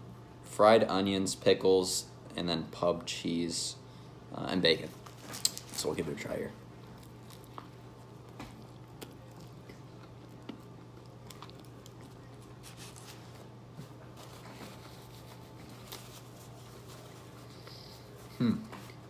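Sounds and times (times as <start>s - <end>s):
steady low hum: 0.0s - 19.0s
person chewing: 6.8s - 13.4s.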